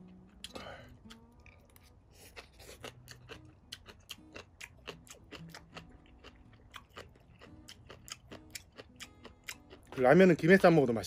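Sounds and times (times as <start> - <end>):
chewing noodles: 0.1 - 10.0.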